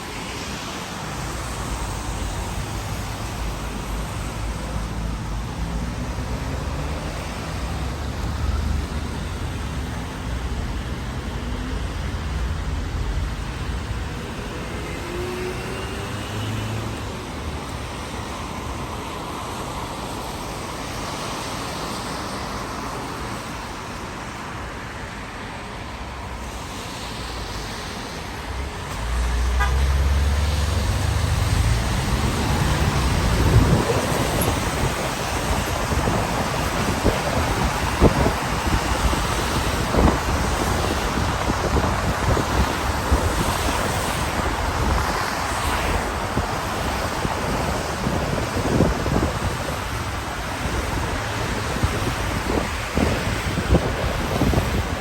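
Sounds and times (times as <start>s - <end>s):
car engines passing: 0.0s - 55.0s
tyres hissing on wet road: 0.0s - 55.0s
low vehicle rumble: 28.4s - 49.7s.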